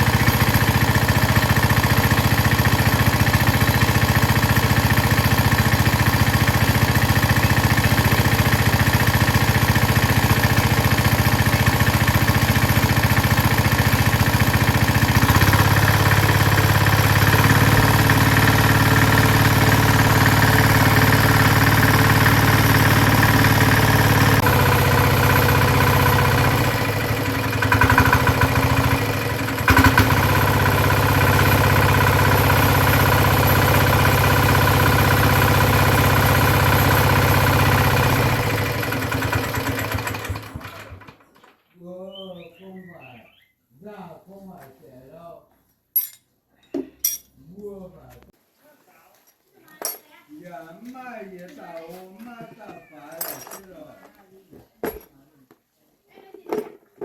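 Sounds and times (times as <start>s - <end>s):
tiller engine running: 0.0s - 41.6s.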